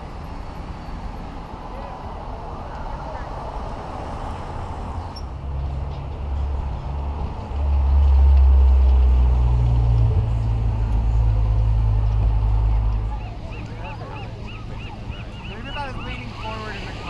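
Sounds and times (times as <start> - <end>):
low engine drone: 5.4 - 17.0.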